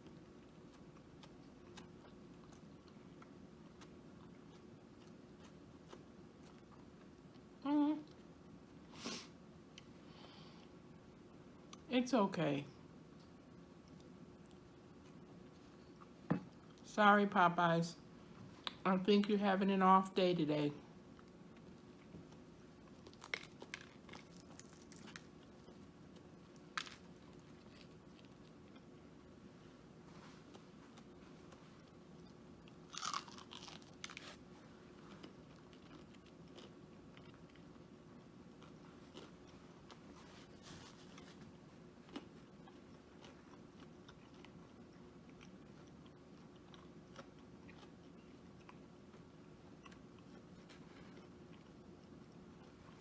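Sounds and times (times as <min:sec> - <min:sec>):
soft chewing: 0:00.0 - 0:11.9, 0:13.1 - 0:16.8, 0:20.9 - 0:53.0
low room hum: 0:00.0 - 0:53.0
food packaging crinkles: 0:22.9 - 0:25.6, 0:26.5 - 0:28.3, 0:32.9 - 0:34.4.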